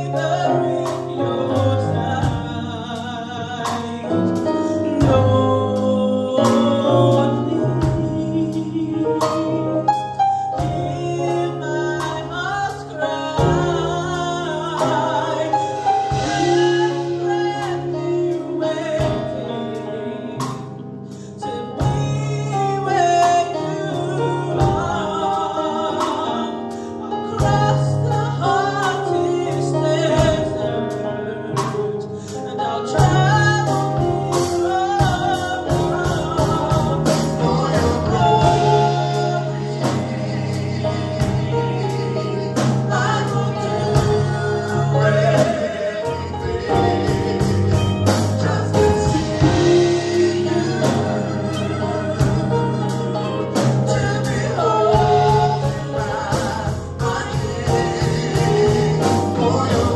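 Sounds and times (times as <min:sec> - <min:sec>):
gospel band playing: 0:00.0 - 0:59.9
male and female voices singing: 0:00.0 - 0:59.9
drum and cymbal hits: 0:15.6 - 0:17.9, 0:33.0 - 0:42.0, 0:42.6 - 0:59.9
bass notes: 0:32.9 - 0:59.9.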